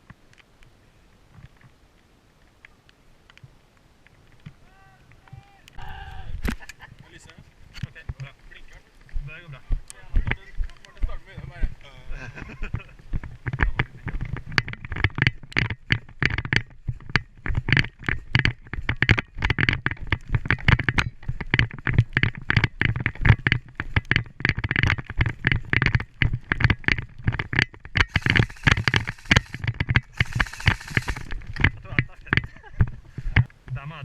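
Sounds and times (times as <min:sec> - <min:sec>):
footsteps on rough ground: 0:06.4 - 0:34.0
gear rustling: 0:20.3 - 0:31.8.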